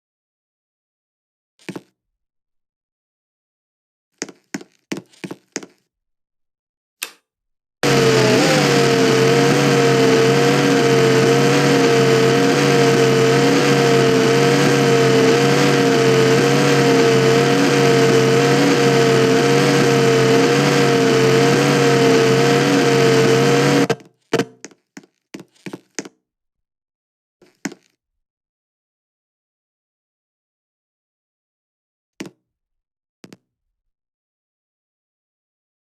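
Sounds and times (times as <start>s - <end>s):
ceiling fan motor humming: 7.8s - 23.9s.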